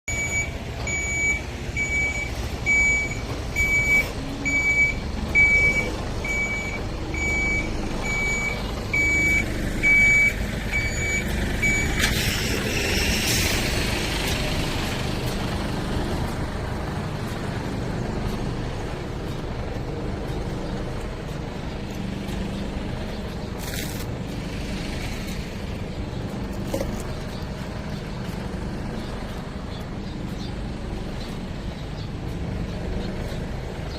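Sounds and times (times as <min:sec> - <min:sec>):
reversing alarm beeping: 0:00.1 - 0:13.7
heavy vehicle engine running: 0:00.1 - 0:33.9.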